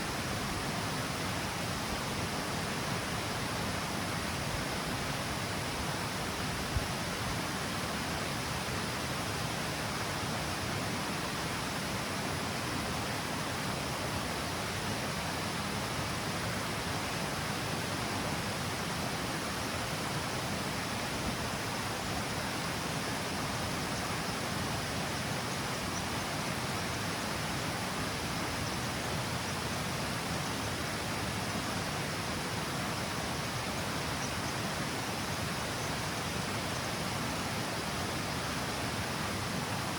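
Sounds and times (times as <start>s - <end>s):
water rushing over cascade: 0.0s - 39.9s.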